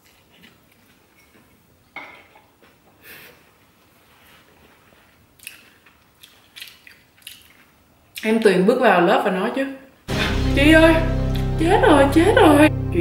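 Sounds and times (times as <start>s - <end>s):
chewing noodles: 0.0s - 1.6s, 5.4s - 8.2s
wet mouth sounds: 5.4s - 8.3s.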